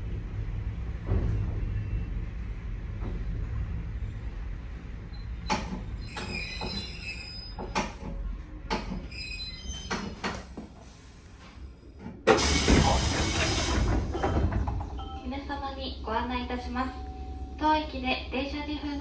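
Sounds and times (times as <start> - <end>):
train low rumble: 0.0 - 9.4, 10.2 - 19.0
high brake squeal: 5.1 - 7.6
loud hiss of air: 12.3 - 14.0.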